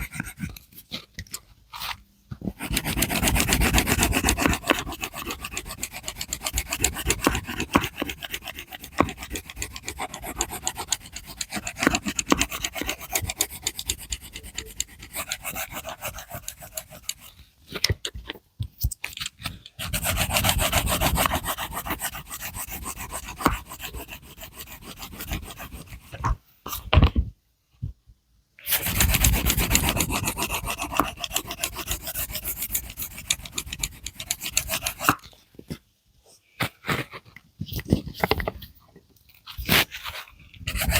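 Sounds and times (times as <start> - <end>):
drawing tool scratching on paper: 0.0 - 1.0, 2.4 - 17.4, 19.8 - 26.4, 28.7 - 35.2, 39.6 - 40.9.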